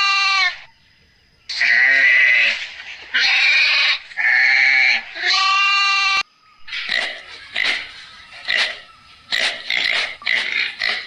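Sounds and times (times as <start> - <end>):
farm animal bleating: 0.0 - 0.6, 1.5 - 2.5, 3.1 - 6.2.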